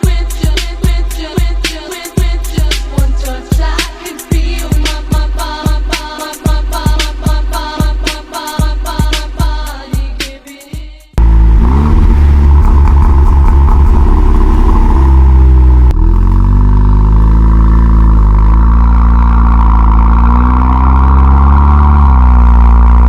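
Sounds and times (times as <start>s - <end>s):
car engine running loud: 11.2s - 23.0s.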